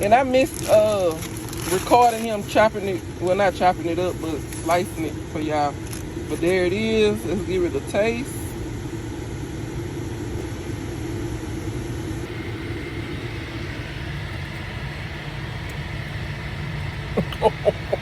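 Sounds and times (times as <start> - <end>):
car engine idling: 12.2 - 18.0.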